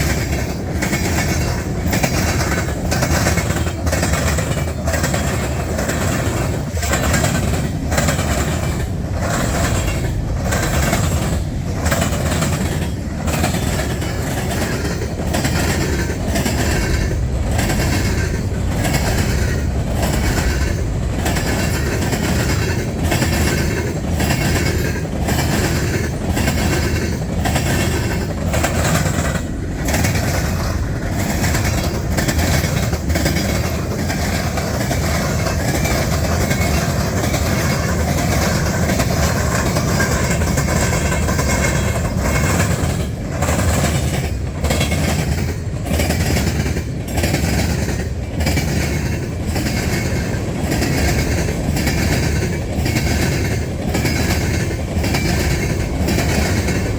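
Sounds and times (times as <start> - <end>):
freight train wheels clacking: 0.0 - 56.9.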